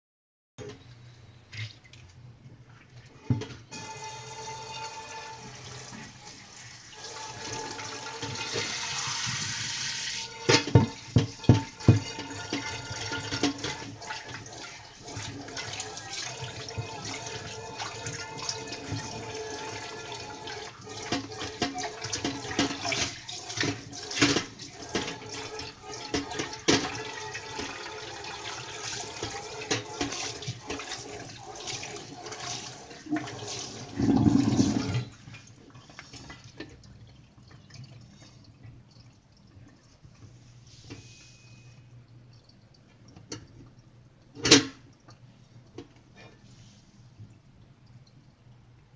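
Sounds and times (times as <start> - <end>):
tap water running: 1.6 - 48.9
pan being scrubbed: 3.2 - 35.2.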